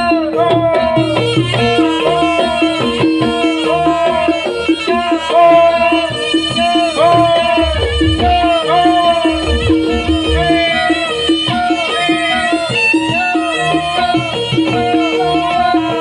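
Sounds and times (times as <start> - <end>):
drums: 0.0 - 16.0
wavering melody line: 1.6 - 16.0
struck metallic notes: 5.4 - 14.0.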